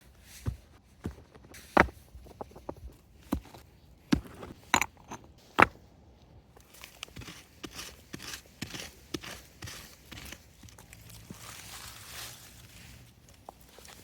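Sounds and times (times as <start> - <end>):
hard objects knocking and clinking: 1.0 - 5.8.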